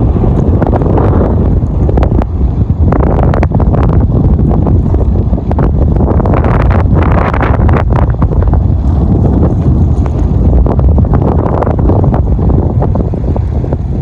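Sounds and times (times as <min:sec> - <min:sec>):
wind buffeting microphone: 0:00.0 - 0:14.0
sharp crackles: 0:08.1 - 0:12.4.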